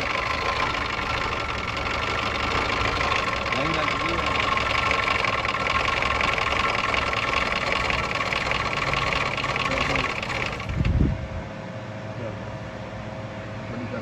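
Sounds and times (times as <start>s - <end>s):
car engine idling: 0.0s - 11.0s
constant whine: 0.0s - 11.8s.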